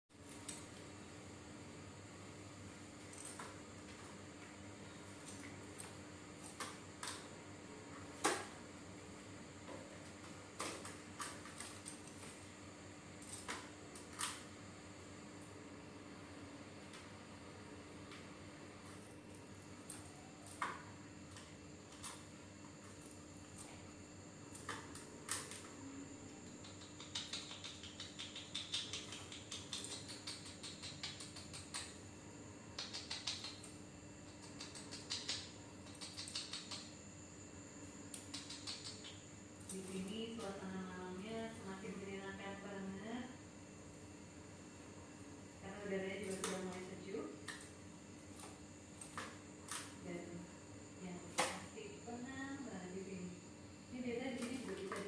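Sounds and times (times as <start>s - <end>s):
faint steady hum: 0.1s - 55.0s
starling ticking: 26.6s - 31.9s.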